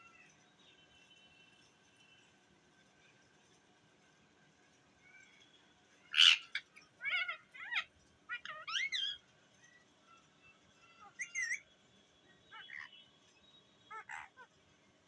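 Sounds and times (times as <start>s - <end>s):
parrot squawking: 6.1s - 9.2s, 12.5s - 12.9s, 13.9s - 14.5s
parrot warbling chirps: 6.1s - 9.2s, 11.0s - 11.6s, 12.5s - 12.9s, 13.9s - 14.5s.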